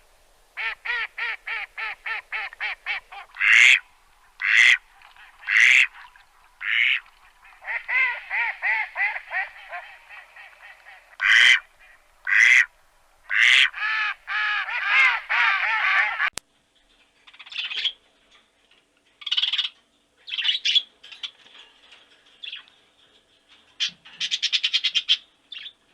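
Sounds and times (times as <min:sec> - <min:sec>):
ducks quacking: 0:00.6 - 0:12.7, 0:13.3 - 0:16.3.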